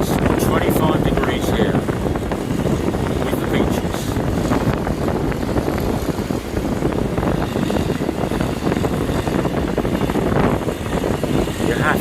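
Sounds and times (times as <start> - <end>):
ferry engines rumbling: 0.0 - 12.0.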